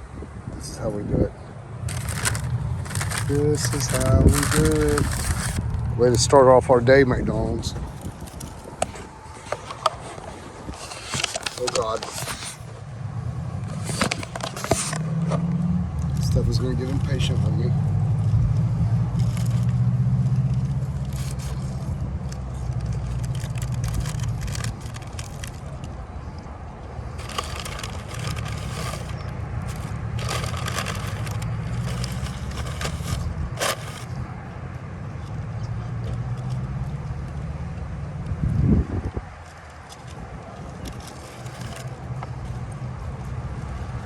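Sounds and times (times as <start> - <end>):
vehicle engine humming: 1.4 - 44.0
food wrapper crinkling: 1.9 - 5.7, 7.8 - 9.0, 10.8 - 12.6, 19.1 - 19.9, 20.5 - 25.9, 27.2 - 34.1.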